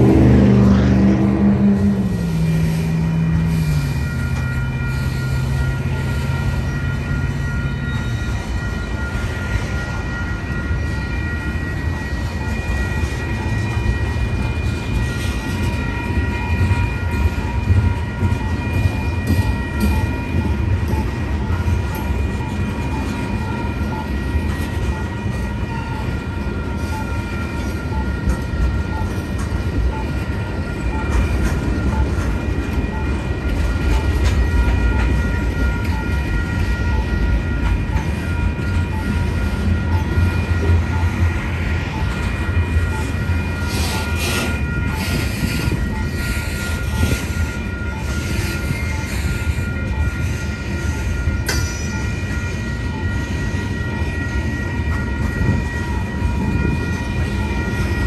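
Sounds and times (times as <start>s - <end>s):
crossing bell dinging: 0.0s - 58.0s
freight train rumbling past: 0.0s - 58.0s
wheel clanks and squeals: 30.7s - 58.0s.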